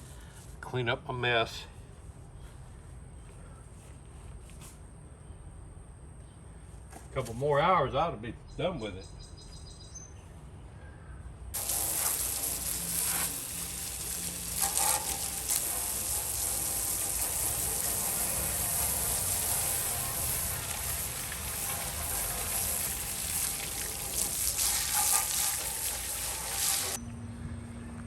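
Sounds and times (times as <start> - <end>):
running water rushing: 11.6 - 27.0.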